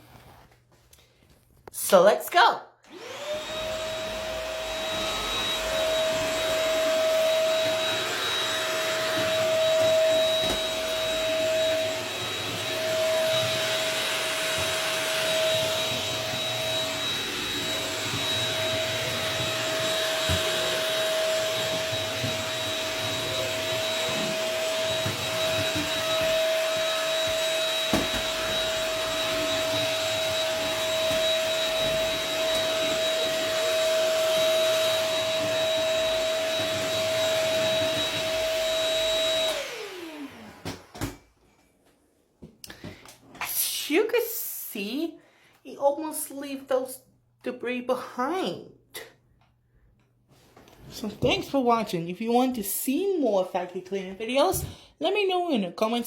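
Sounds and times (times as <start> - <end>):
stick vacuum motor whine: 2.9 - 41.2.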